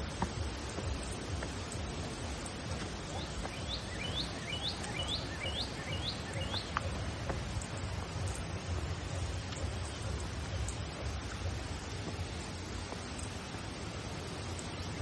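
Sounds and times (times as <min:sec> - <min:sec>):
steady rushing noise: 0:00.0 - 0:15.0
bird singing rising notes: 0:00.9 - 0:09.1.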